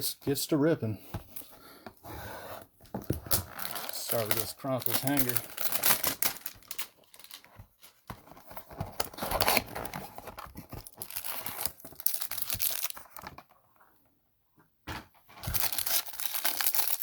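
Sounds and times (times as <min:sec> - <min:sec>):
packaging tearing and crinkling: 0:03.3 - 0:07.5, 0:08.6 - 0:13.4, 0:15.4 - 0:17.0.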